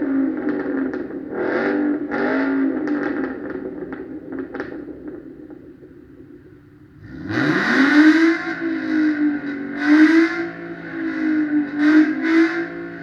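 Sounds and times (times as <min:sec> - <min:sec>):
exhaust crackling pops: 0:02.8 - 0:06.3
car exhaust revving: 0:06.8 - 0:13.0.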